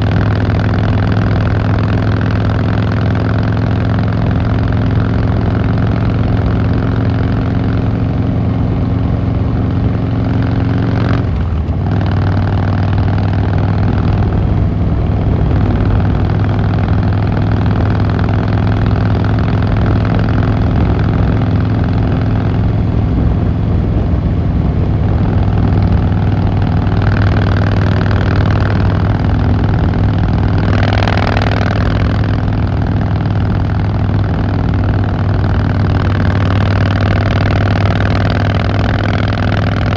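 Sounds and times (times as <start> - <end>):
motorcycle engine and exhaust running: 0.0 - 39.9.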